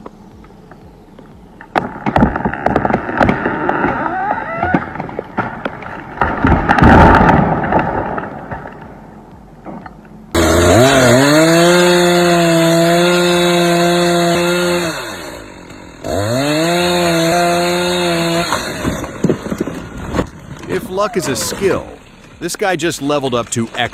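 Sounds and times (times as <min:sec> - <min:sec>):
cracking and knocking: 0:01.7 - 0:09.0, 0:18.5 - 0:20.8
chainsaw revving: 0:10.3 - 0:19.3.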